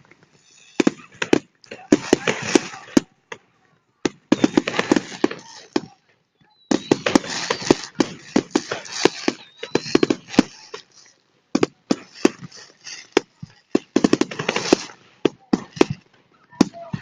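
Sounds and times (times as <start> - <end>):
fireworks bangs and crackles: 0.0 - 17.0
firework whistle: 0.4 - 1.2, 4.2 - 5.9, 6.5 - 11.1.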